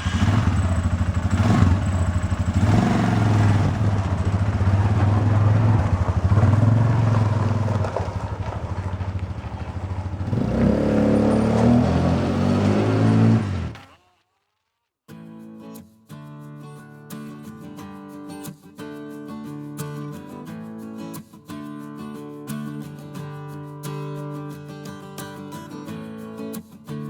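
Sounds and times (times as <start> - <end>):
vehicle engine revving: 0.0 - 14.0.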